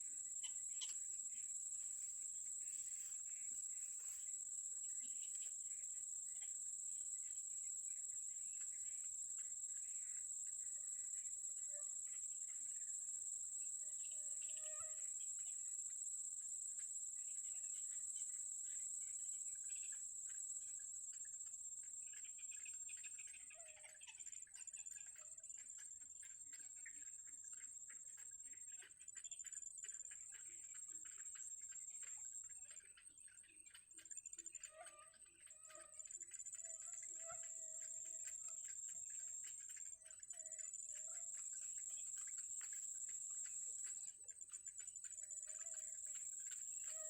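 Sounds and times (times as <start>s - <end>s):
rapid irregular insect ticking: 14.0s - 47.0s.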